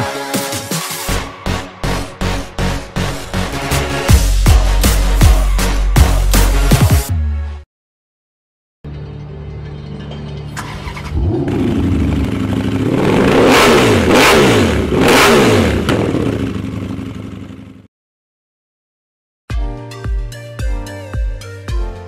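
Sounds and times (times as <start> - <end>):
motorcycle engine idling and revving: 8.9 - 17.9
motorcycle passing by: 10.7 - 17.0.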